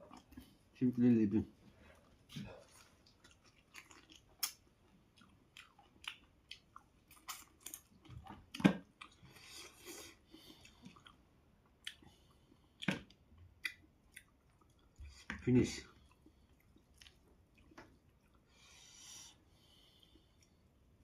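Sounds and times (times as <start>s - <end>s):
person chewing food: 0.0s - 0.8s, 1.7s - 21.0s
wet mouth clicks and smacks: 3.2s - 4.6s.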